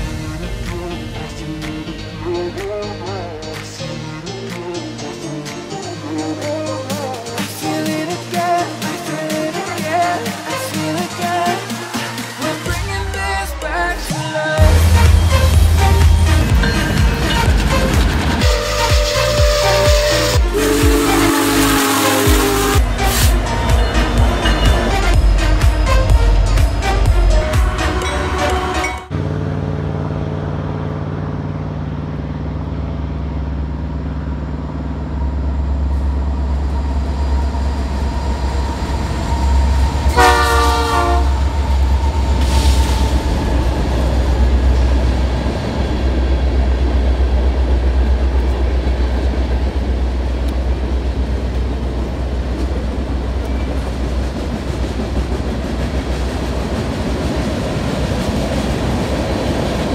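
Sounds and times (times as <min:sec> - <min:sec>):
diesel locomotive rumble: 0:00.0 - 0:06.5, 0:10.3 - 0:59.9
train air horn blast: 0:18.4 - 0:29.1, 0:40.1 - 0:41.5.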